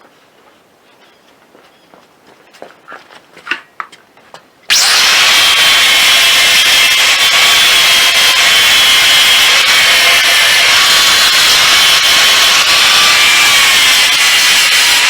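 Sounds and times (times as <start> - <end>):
power sander whining: 4.7 - 15.0.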